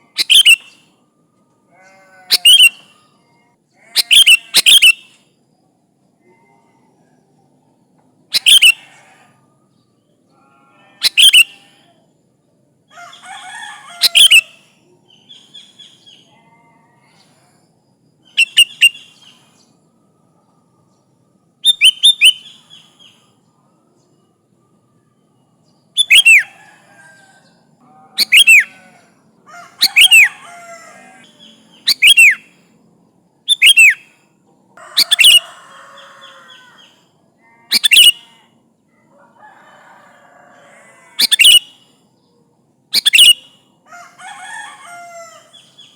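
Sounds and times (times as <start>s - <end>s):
bird sharp calls: 0.1s - 0.8s, 1.9s - 3.0s, 4.0s - 5.2s, 8.3s - 9.2s, 11.0s - 11.7s, 13.1s - 16.2s, 18.3s - 19.5s, 26.0s - 26.8s, 28.2s - 29.0s, 29.6s - 32.6s, 33.5s - 34.2s, 34.8s - 37.0s, 37.7s - 38.4s, 41.2s - 41.8s, 43.0s - 43.6s.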